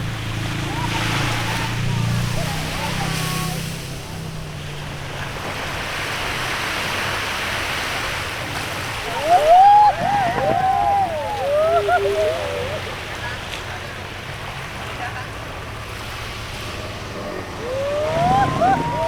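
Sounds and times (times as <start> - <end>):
sea waves washing onto beach: 0.0 - 19.0
high rising and falling calls: 9.0 - 13.0, 17.2 - 19.0.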